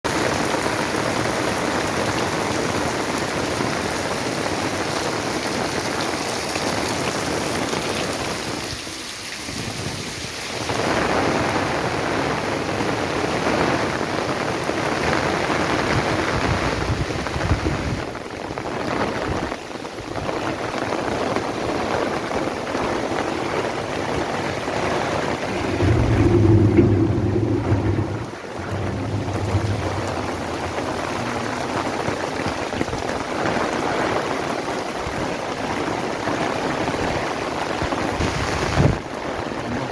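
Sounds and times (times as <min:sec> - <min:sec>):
heavy rain pouring: 0:00.1 - 0:39.9
thunder rumble: 0:24.2 - 0:33.8.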